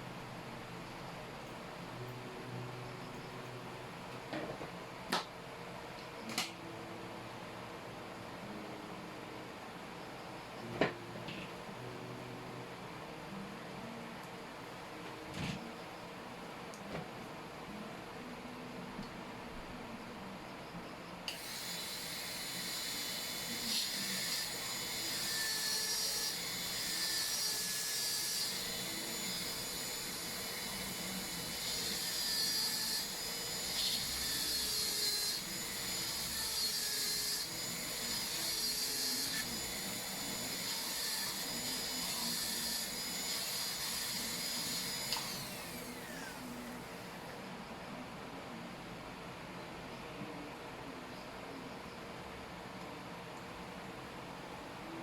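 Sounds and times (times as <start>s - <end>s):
dental drill whining: 21.3s - 47.3s.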